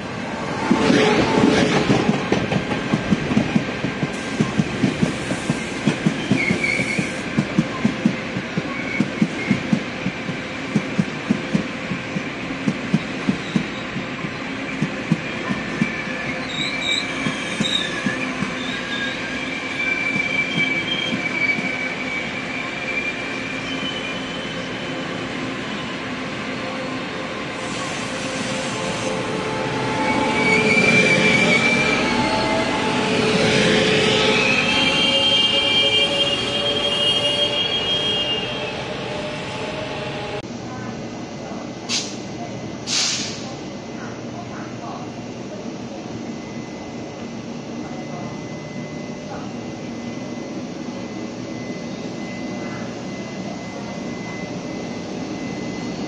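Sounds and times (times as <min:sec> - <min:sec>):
wheel squeals: 0:15.8 - 0:24.5.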